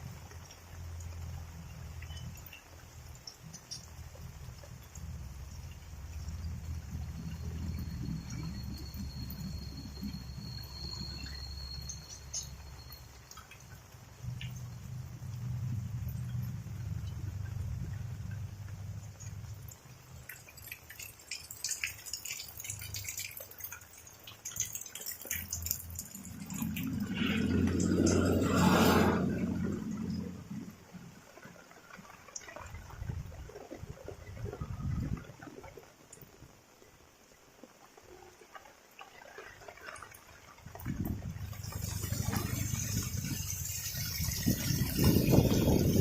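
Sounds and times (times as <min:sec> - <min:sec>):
rain drips ticking: 0:00.0 - 0:46.0
low rumble: 0:25.8 - 0:31.4, 0:40.7 - 0:46.0.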